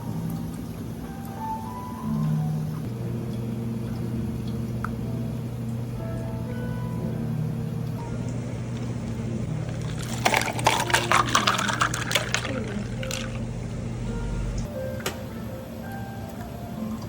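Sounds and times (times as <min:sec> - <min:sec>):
steady low hum: 0:00.0 - 0:17.0
liquid pouring and splashing: 0:09.4 - 0:13.8.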